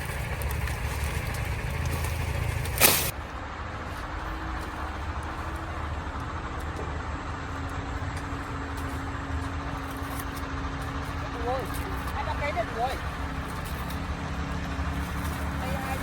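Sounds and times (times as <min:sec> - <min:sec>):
blade chopping sugarcane stalk: 0:00.0 - 0:03.2
steady low rumble: 0:00.0 - 0:16.0.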